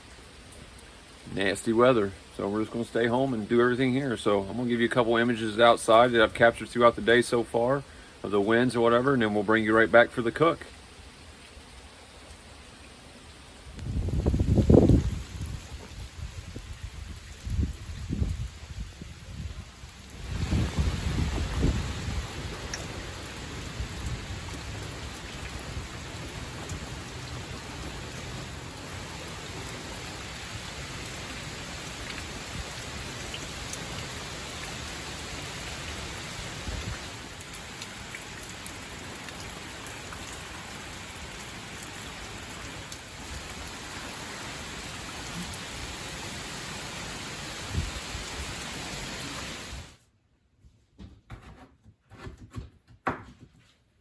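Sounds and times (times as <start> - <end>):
heavy rain: 0.0 - 50.0
wind: 0.0 - 54.0
low thumps of gusts: 13.8 - 28.5.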